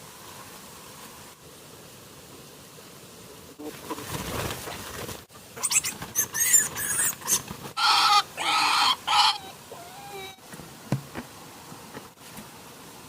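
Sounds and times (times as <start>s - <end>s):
animal squealing and calling: 5.6s - 10.4s.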